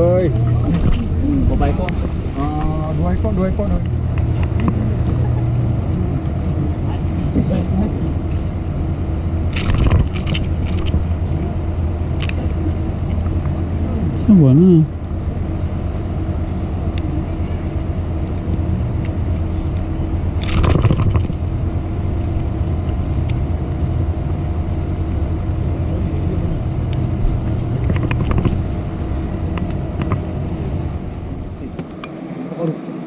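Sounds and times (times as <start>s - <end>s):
engine humming: 0.0s - 33.0s.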